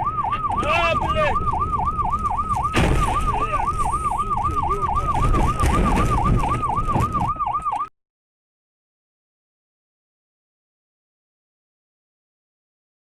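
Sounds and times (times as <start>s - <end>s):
emergency siren yelp: 0.0s - 7.9s
low road rumble: 0.0s - 7.9s.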